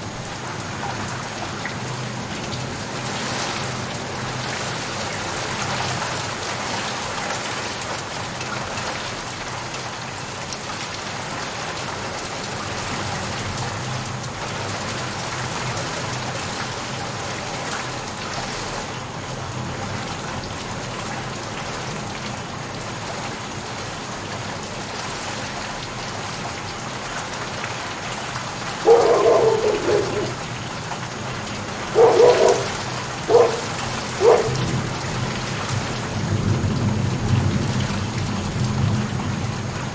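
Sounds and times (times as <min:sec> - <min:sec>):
rain falling: 0:00.0 - 0:39.9
short loud calls: 0:28.9 - 0:34.8.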